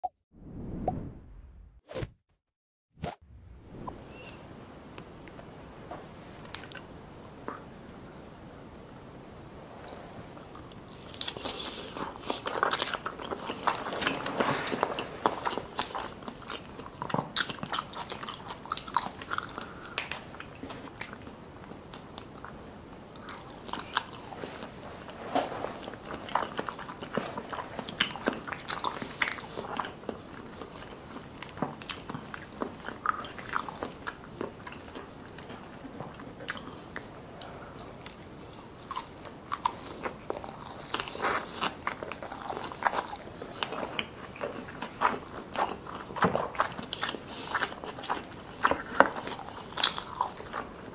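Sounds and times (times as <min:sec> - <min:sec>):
crunchy chewing: 0:10.4 - 0:50.9.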